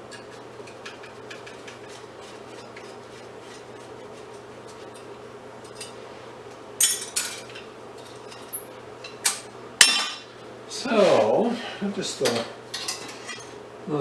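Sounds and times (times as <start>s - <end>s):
scrap metal clinking and clattering: 0.0s - 6.0s, 6.8s - 10.3s, 12.7s - 13.6s
steady low hum: 0.0s - 14.0s.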